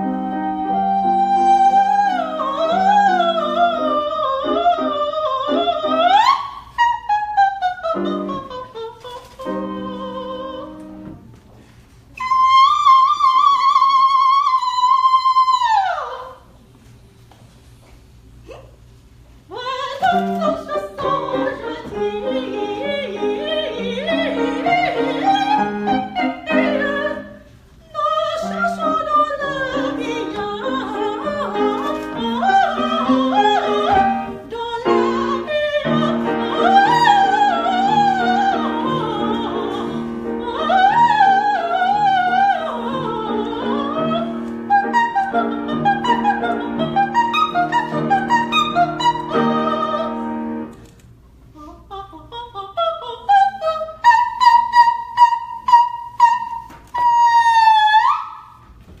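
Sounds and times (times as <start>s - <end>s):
piano accompaniment: 0.0s - 6.4s, 20.0s - 27.4s, 28.1s - 50.8s
operatic singing: 19.5s - 50.5s.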